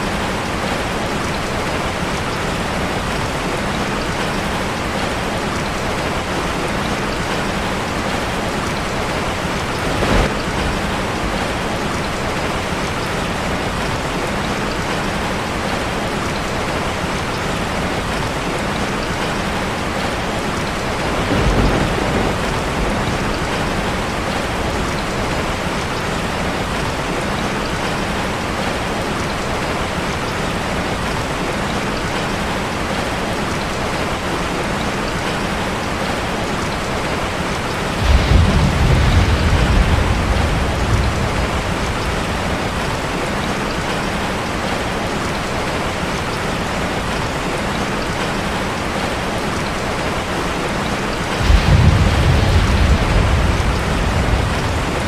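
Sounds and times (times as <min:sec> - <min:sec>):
rain drumming on a metal roof: 0:00.0 - 0:55.0
low rumble of thunder: 0:05.7 - 0:15.0, 0:19.9 - 0:26.7, 0:37.9 - 0:44.0, 0:51.3 - 0:55.0.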